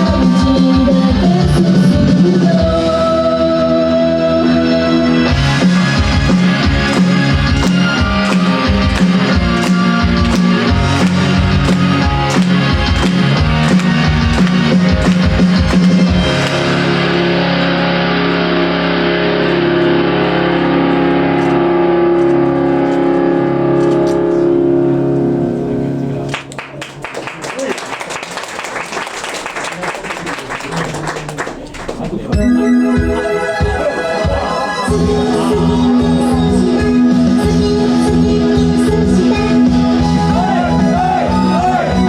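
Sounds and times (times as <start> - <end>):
drums: 0.0 - 3.7, 5.2 - 17.0
distorted electric guitar: 4.3 - 26.7.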